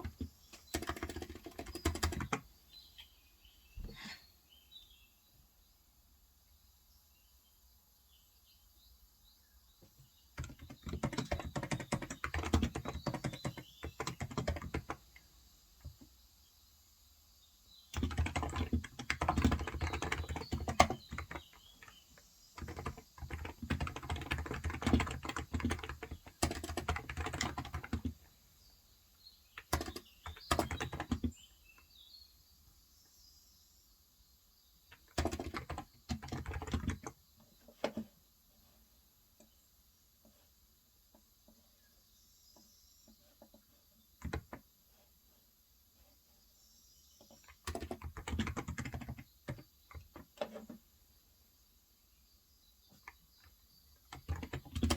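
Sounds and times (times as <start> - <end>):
typing on a keyboard: 0.0 - 2.4, 10.4 - 15.2, 17.9 - 28.2, 29.6 - 31.4, 34.9 - 37.2, 44.2 - 44.6, 47.2 - 50.7, 53.0 - 54.9
faint bird chirps: 0.0 - 5.8, 6.5 - 54.9.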